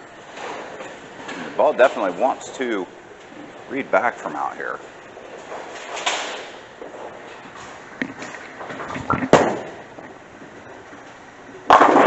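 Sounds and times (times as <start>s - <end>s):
bowling ball rolling: 0.3s - 12.0s
bowling pins crashing: 8.0s - 10.2s, 11.6s - 12.0s.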